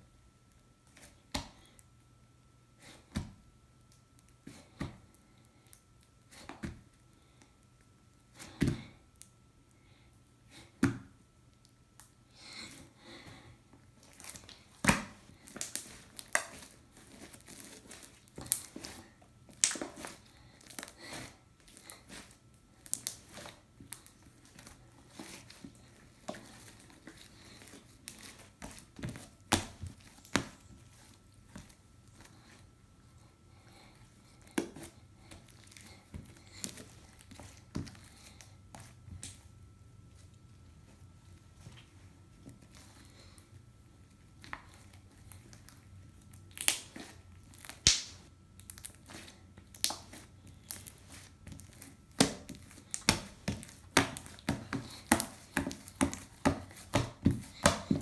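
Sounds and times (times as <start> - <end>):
slime crackling and snapping: 14.1 - 16.7, 19.5 - 20.9, 22.8 - 24.1, 46.3 - 58.0.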